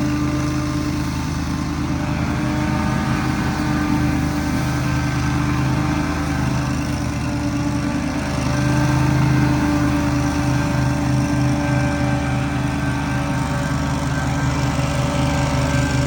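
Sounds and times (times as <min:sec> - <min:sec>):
small gasoline engine running: 0:00.0 - 0:16.0.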